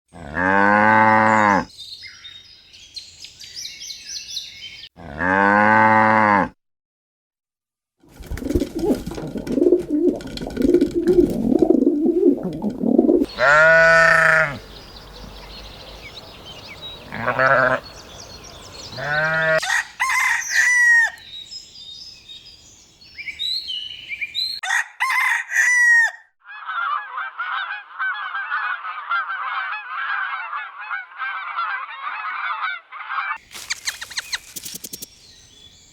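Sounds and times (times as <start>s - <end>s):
chickens clucking: 8.3s - 14.5s
rooster crowing: 19.1s - 21.3s, 24.6s - 26.3s.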